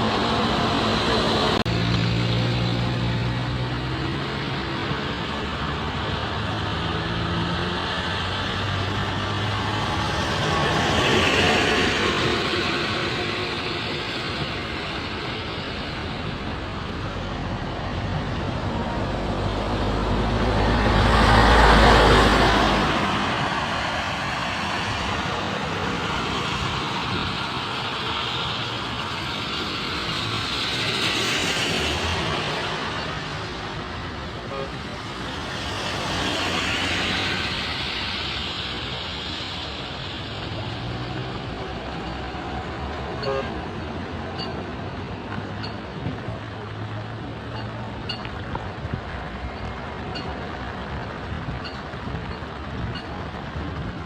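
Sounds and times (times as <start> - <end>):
vehicle engine rumble: 0.0 - 54.0
tyre hiss on wet road: 19.5 - 44.0.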